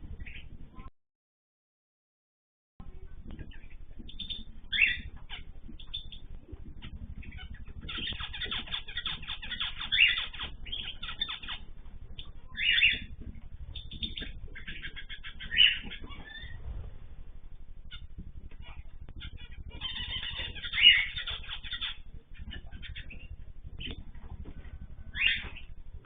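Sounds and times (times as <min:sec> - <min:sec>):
cage birds chirping: 0:00.0 - 0:00.9, 0:02.8 - 0:26.0
low steady hum: 0:00.0 - 0:00.9, 0:02.8 - 0:26.0.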